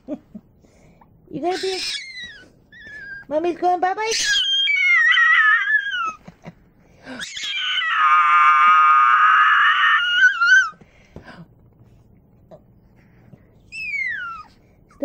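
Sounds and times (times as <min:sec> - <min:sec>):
small dog howling: 0:04.2 - 0:06.2, 0:07.2 - 0:10.8, 0:13.7 - 0:14.5.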